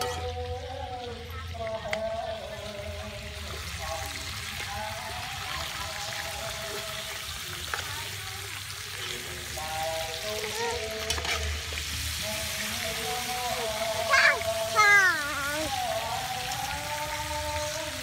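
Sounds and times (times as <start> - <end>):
chicken sizzling in bubbling sauce: 0.0 - 18.0.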